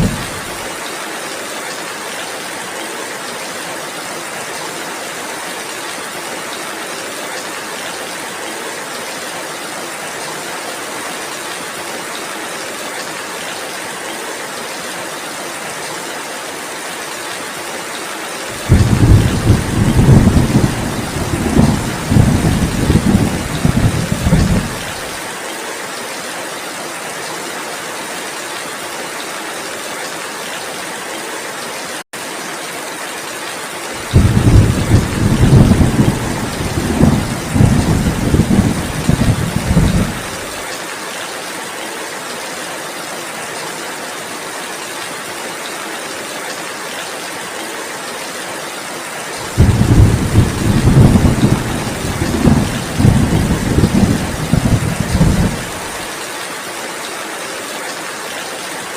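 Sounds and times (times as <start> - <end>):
low thunder rumbling: 0.0 - 0.6, 18.6 - 25.0, 34.0 - 40.6, 49.5 - 56.0
heavy rain falling: 0.0 - 58.9.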